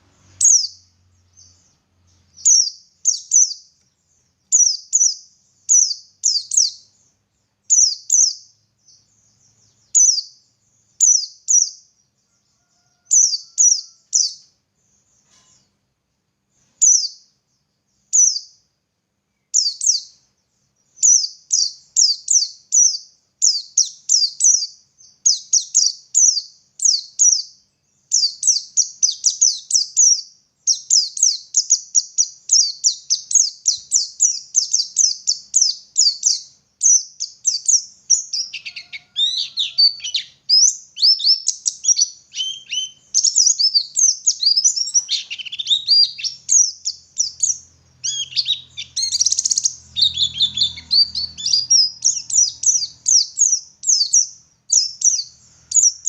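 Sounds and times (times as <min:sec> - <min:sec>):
bird singing high twittering notes: 0:00.0 - 0:11.8, 0:28.1 - 0:56.0.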